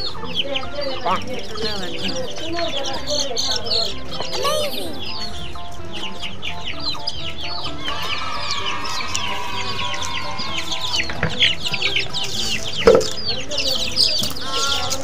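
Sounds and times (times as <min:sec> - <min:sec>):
chicks peeping: 0:00.0 - 0:15.0
sharp knock: 0:12.8 - 0:13.2.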